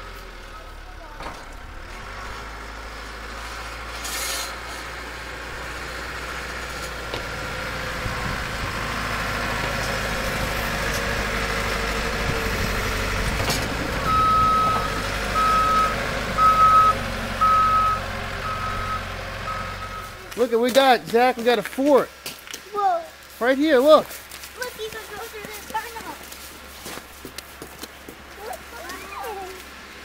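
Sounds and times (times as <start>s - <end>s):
truck engine: 0.0s - 30.0s
reversing beeper: 14.0s - 20.2s.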